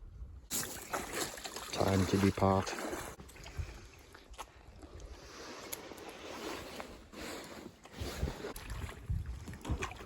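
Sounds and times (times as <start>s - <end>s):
water splashing around kayak: 0.5s - 10.0s
wind buffeting microphone: 8.0s - 10.0s.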